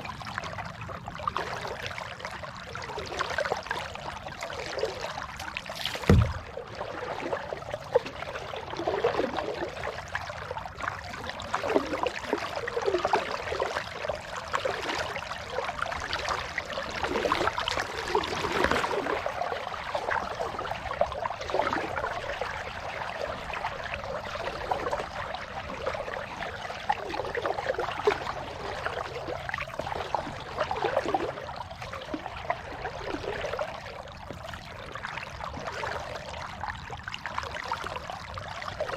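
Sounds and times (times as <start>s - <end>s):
water splashing and trickling: 0.0s - 38.9s
paddle strokes dipping: 4.6s - 9.5s
hard knock: 6.0s - 6.4s.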